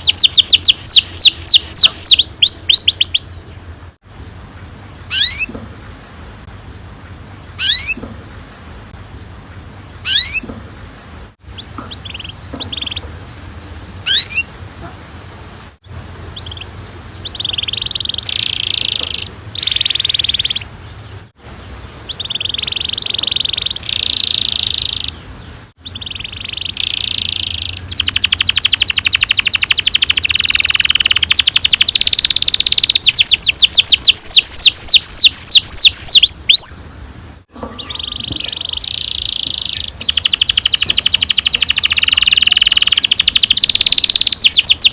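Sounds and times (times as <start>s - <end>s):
canary singing: 0.0s - 3.6s, 5.0s - 5.6s, 7.5s - 8.1s, 10.0s - 10.5s, 11.4s - 13.3s, 14.0s - 14.6s, 16.2s - 21.3s, 21.9s - 36.9s, 37.6s - 44.9s.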